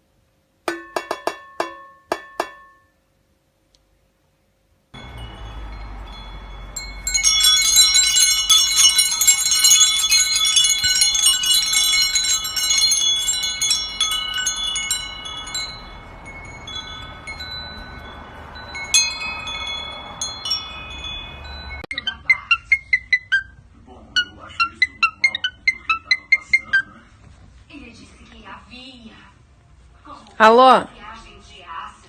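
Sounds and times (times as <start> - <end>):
wind chimes ringing: 5.0 - 22.7.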